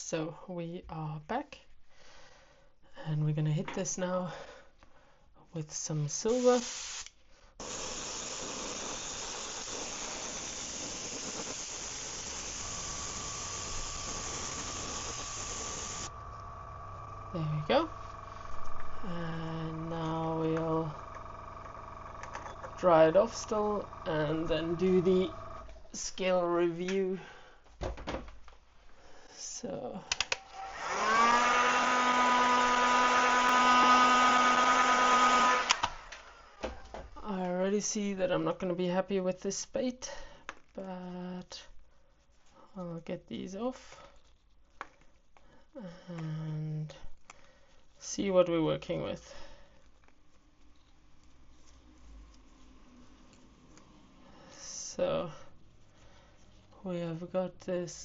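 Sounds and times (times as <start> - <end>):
airbrush spraying hiss: 6.2 - 16.3
hot-air dryer blowing: 6.2 - 25.9, 30.3 - 36.8.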